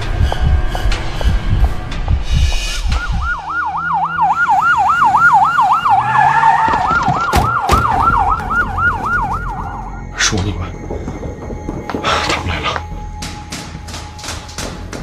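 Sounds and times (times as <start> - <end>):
police siren yelping: 2.9 - 10.9.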